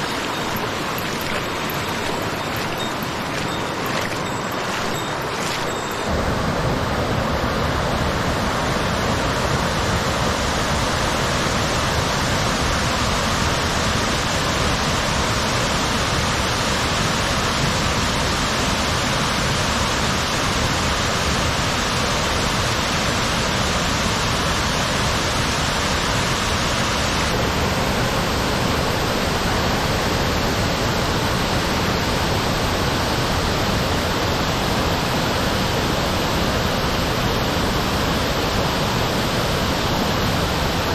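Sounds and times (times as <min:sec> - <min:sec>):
waterfall rushing: 0:00.0 - 0:06.2.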